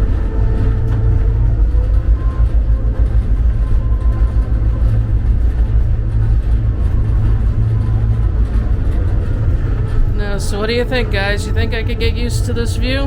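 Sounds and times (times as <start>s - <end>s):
diesel locomotive rumble in cab: 0.0s - 13.0s.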